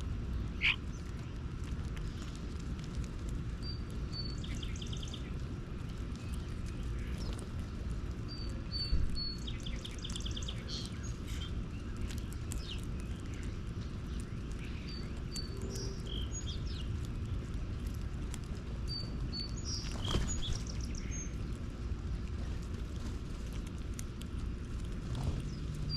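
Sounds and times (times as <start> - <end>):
wild birds chirping: 0.0 - 22.2, 23.9 - 25.9
low background rumble: 0.0 - 25.9.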